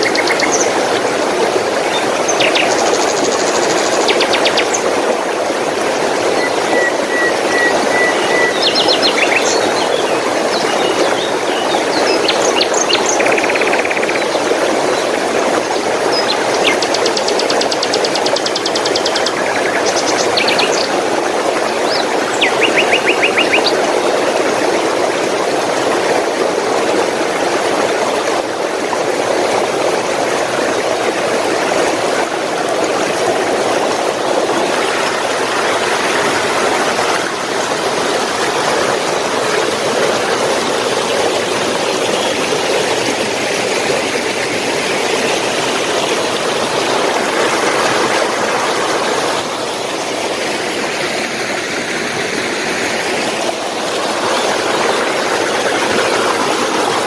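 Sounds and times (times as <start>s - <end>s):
flowing water rushing: 0.0s - 57.0s
bird trilling: 6.4s - 9.8s, 22.4s - 23.7s.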